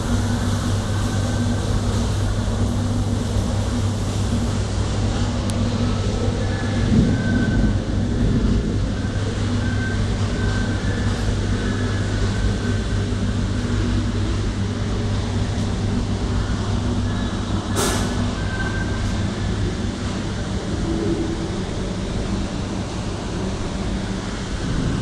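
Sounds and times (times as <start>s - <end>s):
storm wind roaring: 6.8s - 9.5s, 20.5s - 25.0s.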